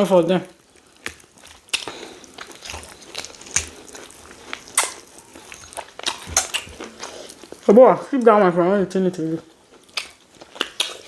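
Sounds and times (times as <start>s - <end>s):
person chewing food: 0.0s - 7.7s, 9.5s - 11.0s
wet mouth smacks and clicks: 1.0s - 7.0s, 9.9s - 11.0s.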